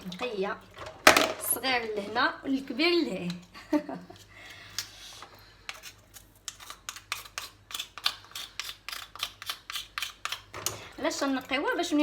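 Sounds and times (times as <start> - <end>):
knife scraping mussel shells: 4.8 - 10.6.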